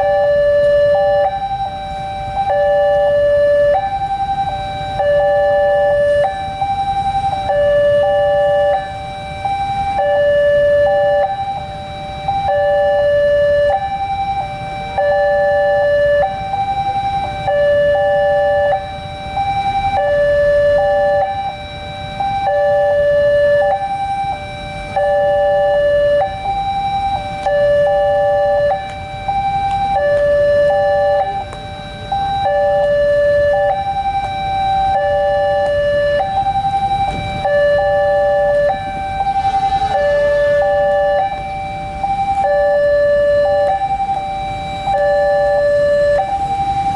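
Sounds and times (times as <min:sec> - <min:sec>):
two-tone crossing alarm: 0:00.0 - 0:46.9
low rumble: 0:36.4 - 0:42.3.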